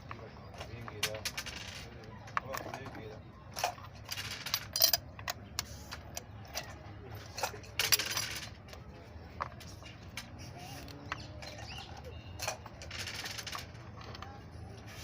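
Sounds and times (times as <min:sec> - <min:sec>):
clatter of parts: 0:00.0 - 0:10.4, 0:12.4 - 0:14.4
metallic clinks of tools: 0:04.4 - 0:05.4.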